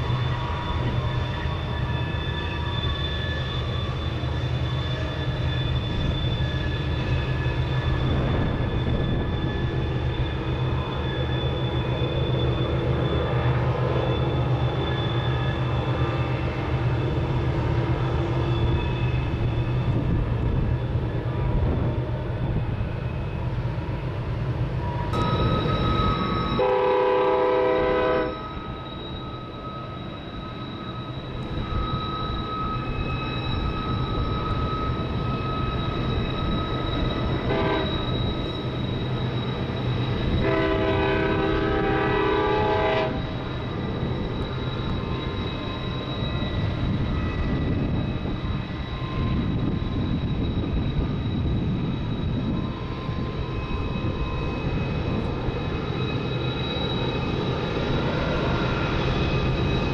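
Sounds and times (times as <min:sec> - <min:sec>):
train horn blasts: 0:26.5 - 0:28.6, 0:37.4 - 0:38.1, 0:40.3 - 0:43.3.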